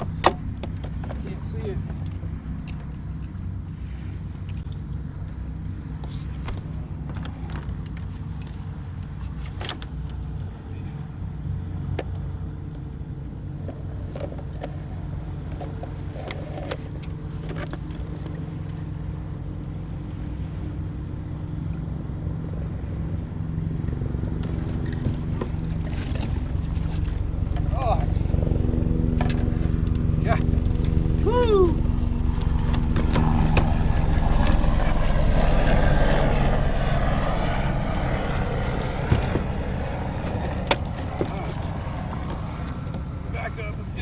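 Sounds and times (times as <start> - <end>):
low engine drone: 0.0 - 44.0.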